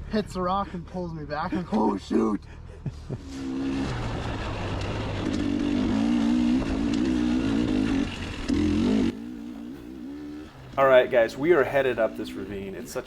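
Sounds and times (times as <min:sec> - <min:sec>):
dirt bike engine running: 0:03.3 - 0:13.0.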